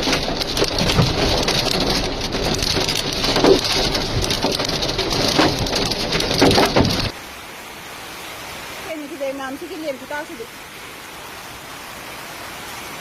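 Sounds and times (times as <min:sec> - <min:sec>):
hailstones pelting down: 0:00.0 - 0:07.2.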